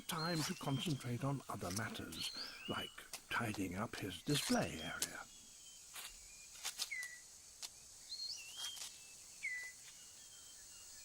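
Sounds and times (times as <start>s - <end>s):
whistled bird calls: 0.0s - 1.2s, 4.7s - 7.2s, 8.0s - 11.0s
insect hiss: 0.0s - 11.0s.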